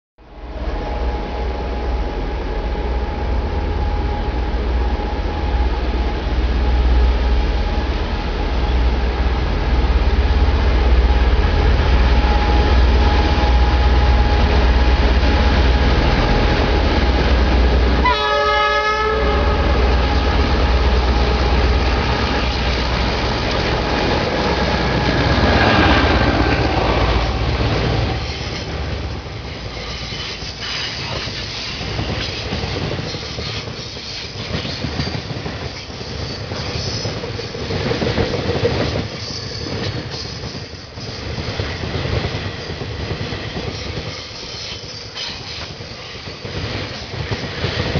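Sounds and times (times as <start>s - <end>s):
diesel locomotive engine rumble: 0.2s - 47.9s
locomotive horn: 10.8s - 28.8s.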